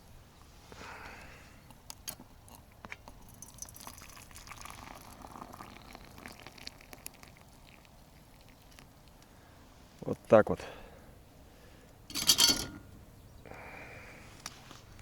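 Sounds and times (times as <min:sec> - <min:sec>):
hot water bubbling and splashing: 0:03.2 - 0:09.2
metal kettle clinks: 0:12.1 - 0:13.0.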